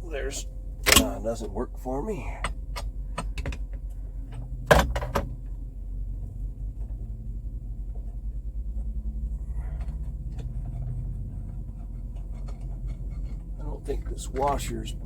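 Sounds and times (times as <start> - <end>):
truck engine idling: 0.0 - 15.0
sharp knocks: 4.7 - 5.3.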